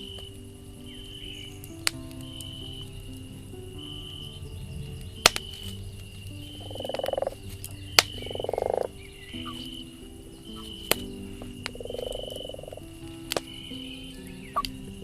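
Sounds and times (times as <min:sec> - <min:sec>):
campfire pops: 0:01.6 - 0:02.6, 0:05.0 - 0:06.4, 0:07.0 - 0:08.3, 0:10.6 - 0:12.3, 0:13.2 - 0:13.6
frog croaks: 0:03.8 - 0:15.0.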